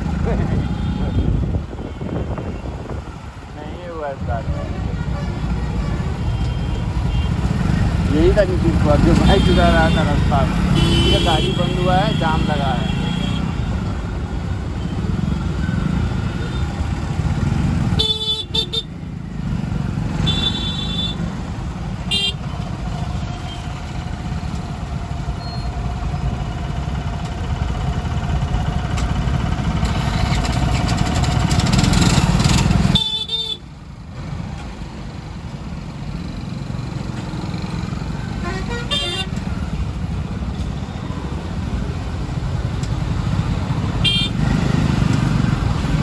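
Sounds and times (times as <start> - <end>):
motorcycle and car horns honking: 0.0 - 3.2, 4.9 - 13.9, 14.8 - 19.0, 20.1 - 21.4, 22.0 - 24.0, 29.8 - 33.7, 38.0 - 39.9, 43.0 - 46.0
engines idling and running: 0.0 - 46.0.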